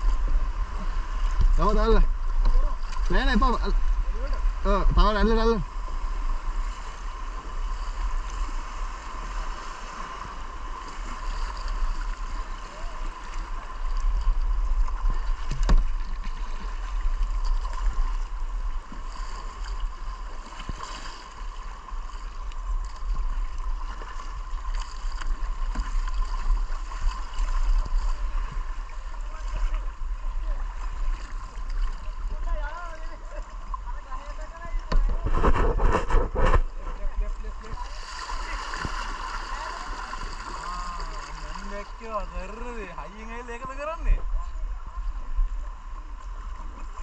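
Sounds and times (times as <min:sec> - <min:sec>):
deep rumble: 0:24.6 - 0:41.5.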